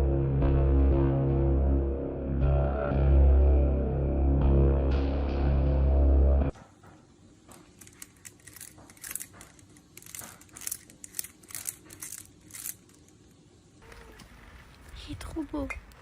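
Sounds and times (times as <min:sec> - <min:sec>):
crinkling and rustling: 0:06.6 - 0:16.0.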